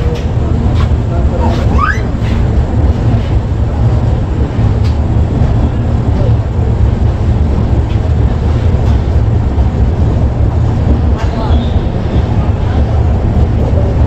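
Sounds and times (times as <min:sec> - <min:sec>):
train coach wheels rumbling: 0:00.0 - 0:14.0.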